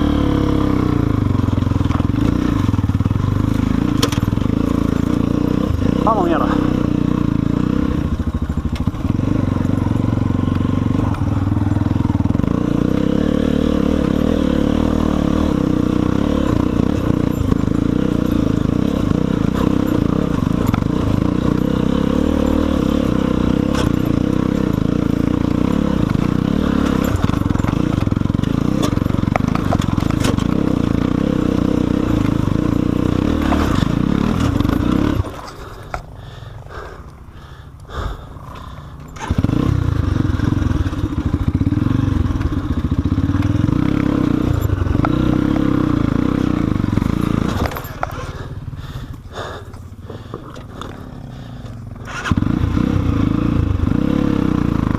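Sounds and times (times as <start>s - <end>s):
motorcycle engine running under load: 0.0s - 54.9s
rocks scraping and knocking: 23.6s - 36.1s, 46.5s - 48.4s.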